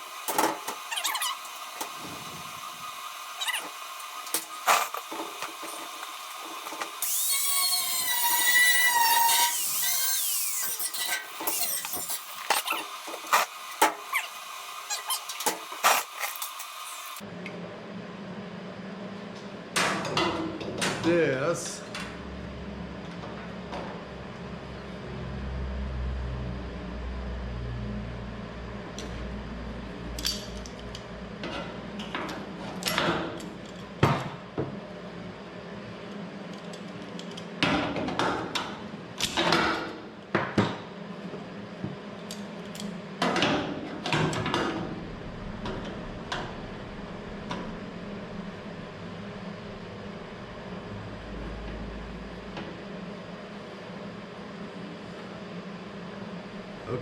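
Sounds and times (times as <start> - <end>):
low steady hum: 44.5 - 53.0.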